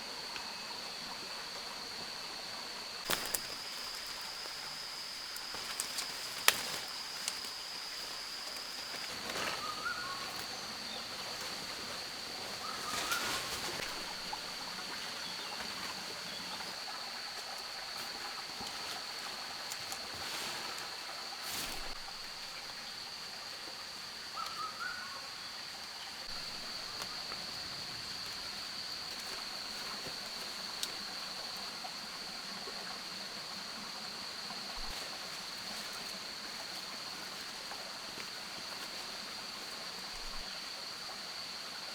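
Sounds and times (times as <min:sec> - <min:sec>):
high-pitched insect drone: 0:00.0 - 0:41.5
running water rush: 0:00.0 - 0:41.9.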